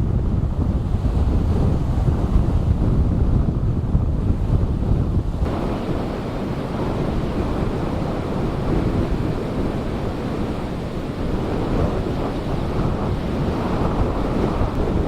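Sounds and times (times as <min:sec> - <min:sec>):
wind noise on microphone: 0:00.0 - 0:15.0
ocean surf rushing on shore: 0:04.2 - 0:15.0.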